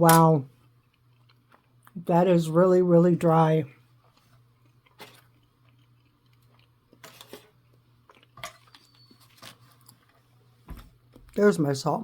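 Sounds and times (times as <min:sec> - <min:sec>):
low steady hum: 0:00.0 - 0:12.0
quiet chewing: 0:00.5 - 0:02.0, 0:03.7 - 0:11.2
soft handling clicks and rustles: 0:04.0 - 0:11.4.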